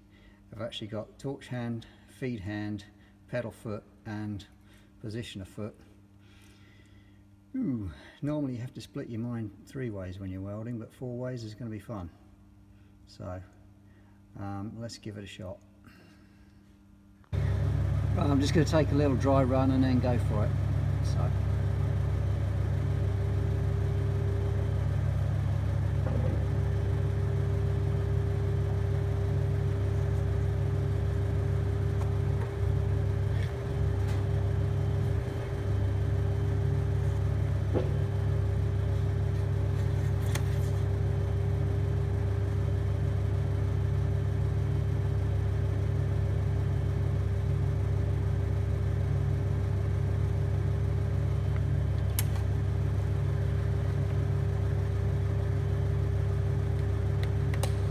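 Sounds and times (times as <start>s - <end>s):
electrical hum of welder: 17.2s - 57.9s.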